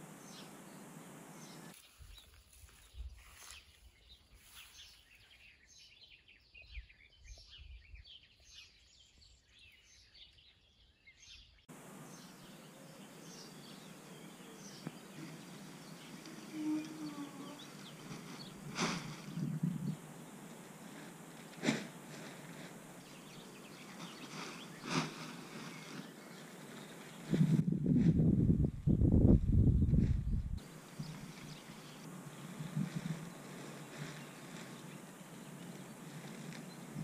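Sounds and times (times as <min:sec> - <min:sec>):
faint background hiss: 0:00.0 - 0:02.8, 0:11.7 - 0:27.6, 0:30.6 - 0:37.0
birds chirping: 0:00.0 - 0:27.6, 0:30.6 - 0:37.0.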